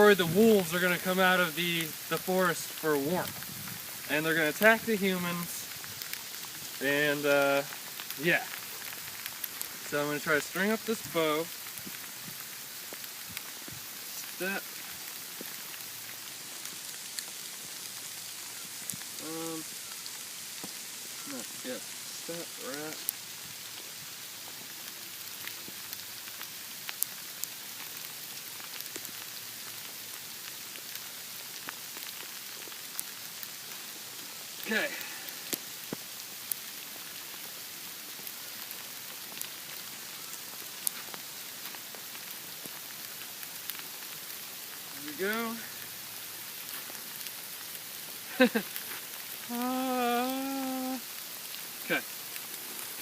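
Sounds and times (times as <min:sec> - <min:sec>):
sleet pattering on ground: 0:01.8 - 0:53.0
small ticks: 0:24.5 - 0:34.4, 0:35.2 - 0:44.9
person grunting: 0:49.5 - 0:51.0.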